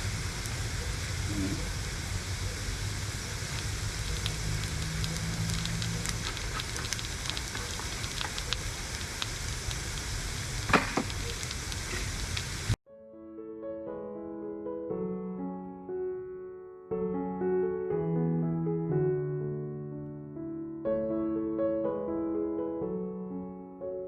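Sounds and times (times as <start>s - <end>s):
rain pattering on a tent: 0.0s - 12.8s
piano music: 12.9s - 24.0s.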